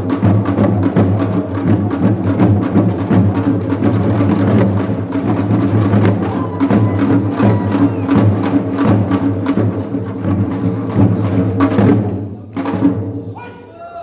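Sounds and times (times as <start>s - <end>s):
percussion band drums and gongs: 0.0s - 14.0s.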